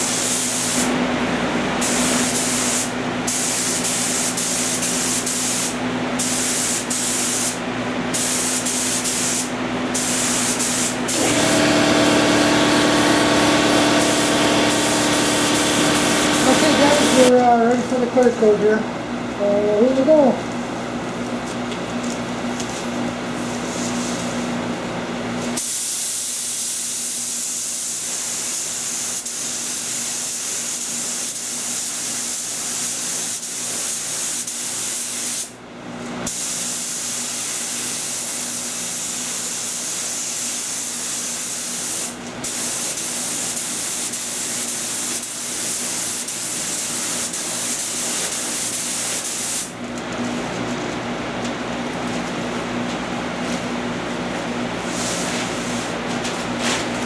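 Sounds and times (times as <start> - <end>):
spray gun hissing: 0.0 - 0.9, 1.8 - 17.3.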